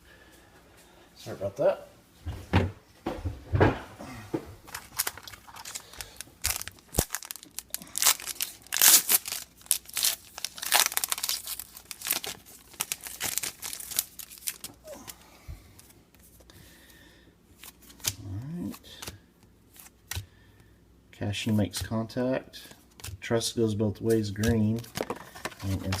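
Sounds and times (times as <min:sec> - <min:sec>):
card pack wrapper crinkling: 0:04.7 - 0:15.2, 0:24.4 - 0:26.0.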